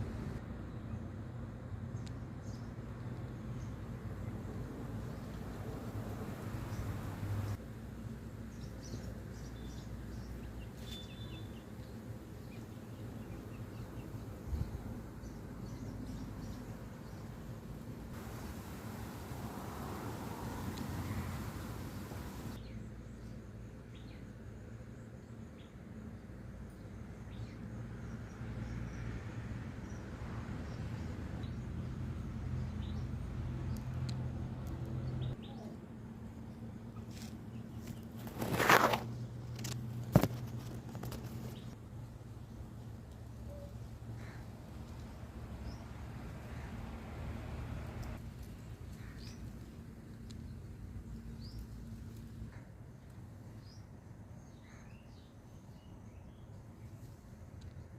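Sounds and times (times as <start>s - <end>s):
small birds chirping: 6.4s - 25.8s
bird chirps: 43.4s - 44.4s.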